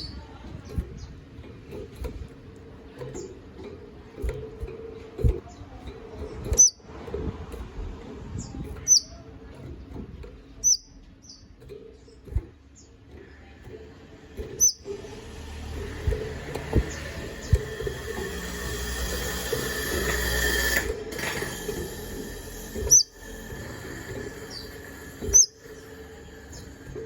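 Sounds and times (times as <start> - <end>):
steady low hum: 0.0 - 27.0
bird chirps: 6.5 - 6.8, 8.8 - 9.2, 10.6 - 11.5, 14.4 - 14.9, 22.8 - 23.2, 24.4 - 26.7.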